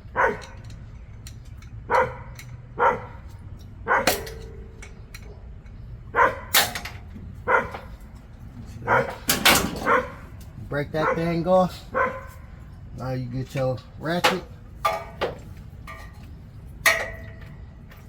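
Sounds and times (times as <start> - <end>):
low background hum: 0.0 - 18.0
dog barking: 0.1 - 0.6, 1.9 - 4.2, 6.1 - 6.5, 7.4 - 7.9, 8.8 - 10.3, 11.0 - 12.5.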